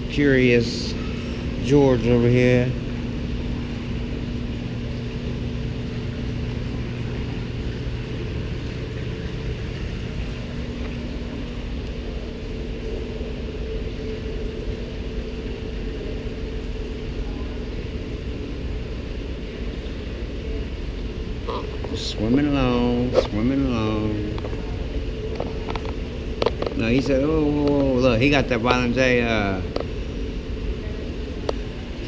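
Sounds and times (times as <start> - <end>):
low mechanical hum: 0.0 - 32.0.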